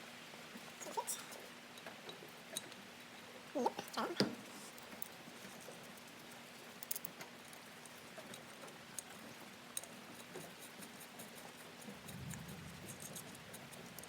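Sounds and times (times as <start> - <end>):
low steady hiss: 0.0 - 14.0
clicks of small metal parts: 6.8 - 7.2.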